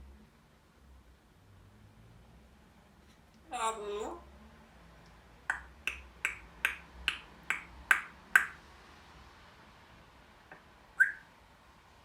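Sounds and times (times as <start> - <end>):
parrot making sharp clicks: 5.5 - 8.6.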